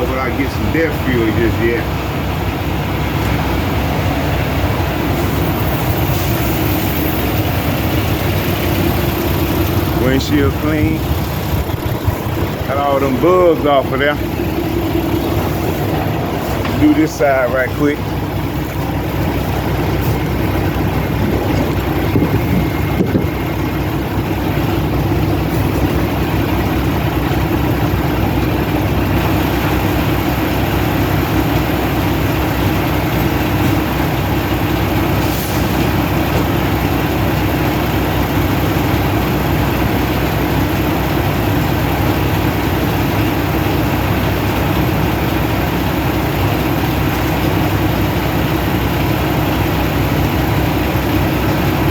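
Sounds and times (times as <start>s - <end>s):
diesel truck engine idling: 0.0s - 51.9s.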